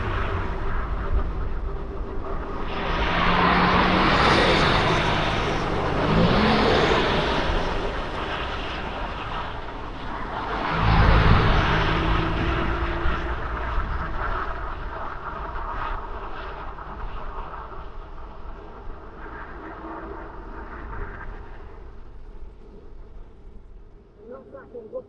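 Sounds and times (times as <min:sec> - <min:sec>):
vehicles passing on road: 0:00.0 - 0:16.2.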